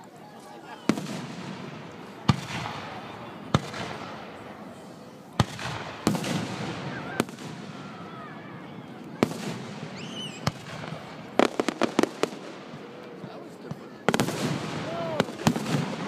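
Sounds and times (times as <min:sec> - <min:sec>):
fireworks bursting: 0:00.8 - 0:16.0.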